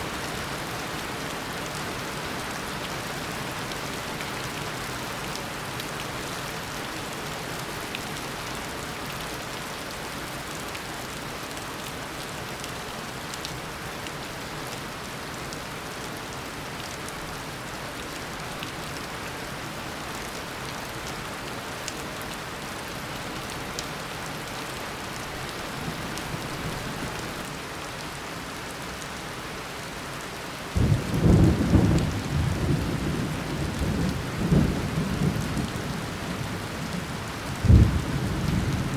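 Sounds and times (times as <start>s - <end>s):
heavy rain falling: 0.0s - 38.9s
thunder rumbling: 37.6s - 38.9s.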